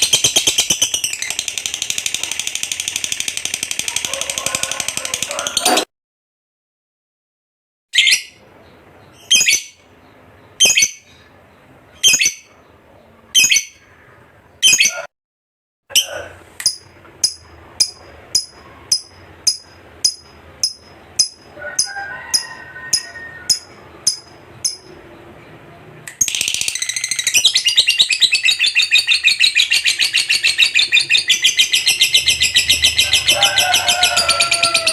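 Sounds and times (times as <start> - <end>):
lovebird shrill chirps: 9.2 - 9.8, 10.6 - 11.0, 12.0 - 12.5, 13.4 - 13.8, 26.2 - 34.9.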